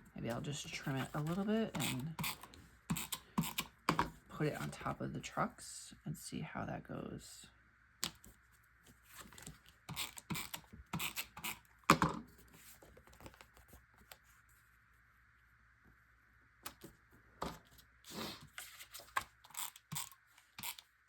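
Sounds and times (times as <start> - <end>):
paper rustling: 8.2 - 9.8, 12.3 - 14.7.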